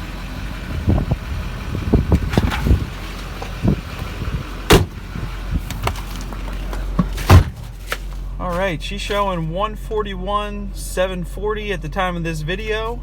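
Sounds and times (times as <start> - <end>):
diesel engine idling: 0.0 - 13.0
truck door clunks and latch clicks: 2.1 - 7.7.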